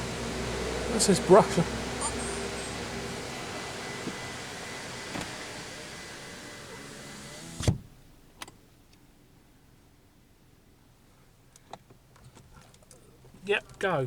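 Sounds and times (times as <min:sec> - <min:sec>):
electric window motor: 0:00.0 - 0:07.9
outside noise: 0:00.0 - 0:14.0
glass seating thump: 0:01.9 - 0:07.9.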